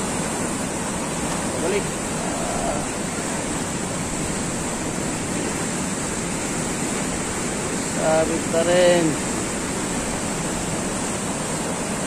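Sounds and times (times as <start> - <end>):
whitewater rushing: 0.0 - 12.0.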